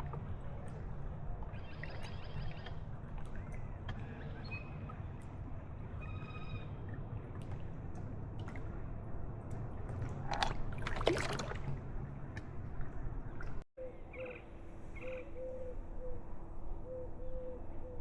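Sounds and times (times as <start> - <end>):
water splashing against kayak: 9.9 - 13.6.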